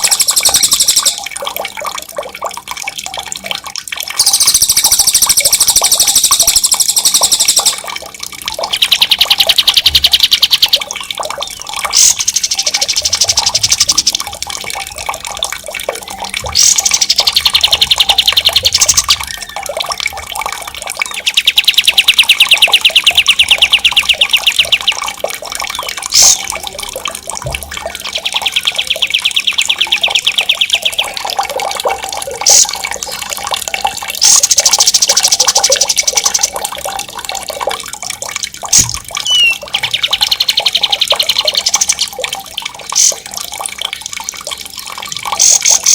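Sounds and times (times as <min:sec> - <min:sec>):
running water: 0:00.0 - 0:45.9
short sharp bird calls: 0:39.3 - 0:39.6
songbird rolling trills: 0:39.3 - 0:40.2.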